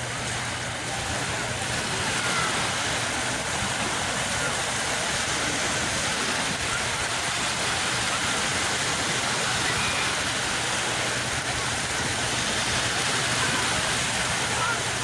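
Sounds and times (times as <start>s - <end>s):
sea waves washing on shore: 0.0s - 15.0s.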